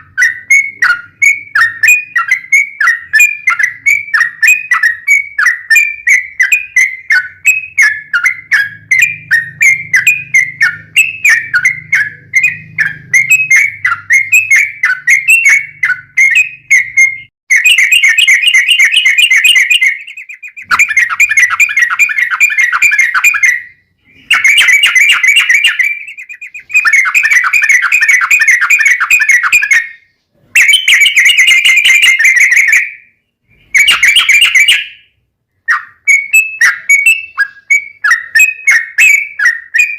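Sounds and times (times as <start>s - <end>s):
bird whistling and trilling: 0.0s - 39.9s.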